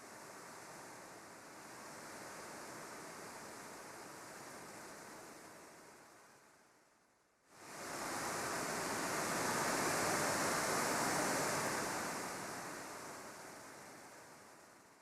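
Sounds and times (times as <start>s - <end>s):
sea wave surging and washing back: 7.6s - 14.8s.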